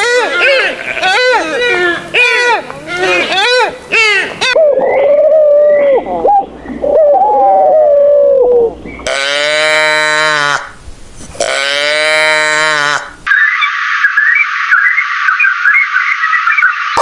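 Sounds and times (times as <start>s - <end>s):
animal wavering cries: 0.0s - 9.3s
long steady animal calls: 0.0s - 9.8s, 11.4s - 17.0s.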